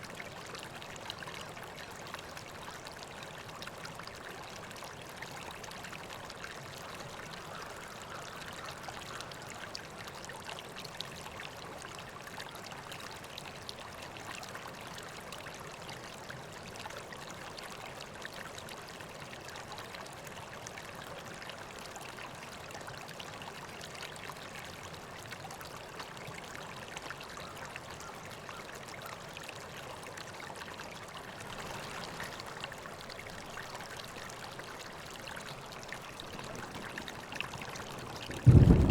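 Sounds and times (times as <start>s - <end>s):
river water flowing over rocks: 20.7s - 38.9s.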